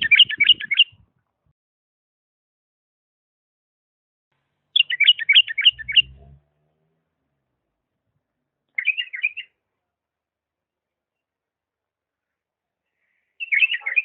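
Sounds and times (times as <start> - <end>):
bird warbling chirps: 0.0 - 1.0, 4.7 - 6.4, 8.8 - 9.5, 13.4 - 14.0
faint low rumble: 5.4 - 8.6.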